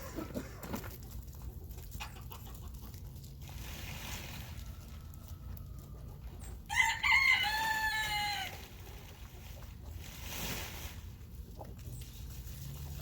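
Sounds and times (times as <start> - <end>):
rooster crowing: 6.7 - 8.6.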